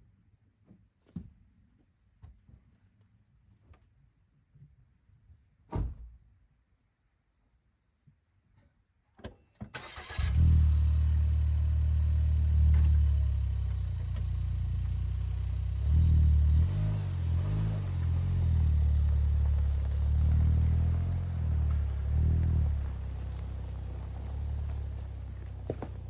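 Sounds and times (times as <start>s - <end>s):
car engine cranking and idling: 9.7s - 26.0s.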